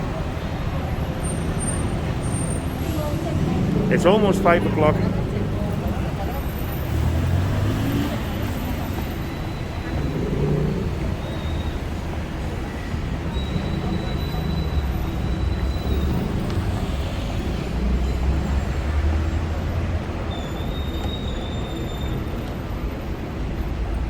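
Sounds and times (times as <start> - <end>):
heavy city traffic rumble: 0.0 - 24.0
high squeal: 13.2 - 17.4, 20.3 - 22.4.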